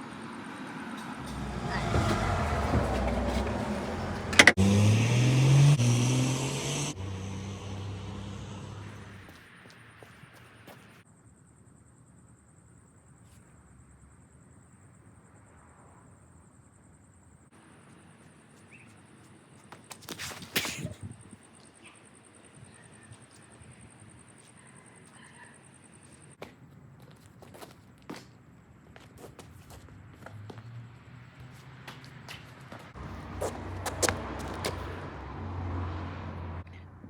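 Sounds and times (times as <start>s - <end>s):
vehicle engine revving: 1.2s - 9.3s, 32.9s - 36.8s.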